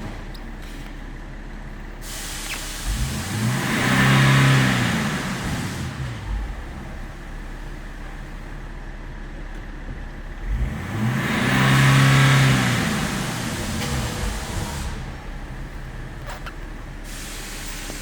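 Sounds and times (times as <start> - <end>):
diesel engine idling and revving: 0.0 - 18.0.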